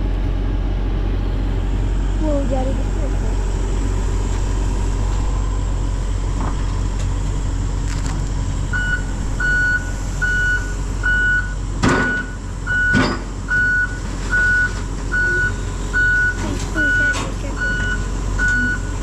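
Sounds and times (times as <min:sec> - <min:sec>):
excavator diesel engine running: 0:00.0 - 0:19.0
travel alarm beeping: 0:08.7 - 0:19.0.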